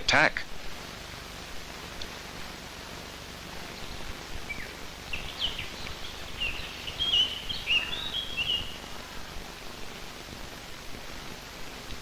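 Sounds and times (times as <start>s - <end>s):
film soundtrack hiss: 0.0s - 12.0s
bird chirping: 3.6s - 10.4s.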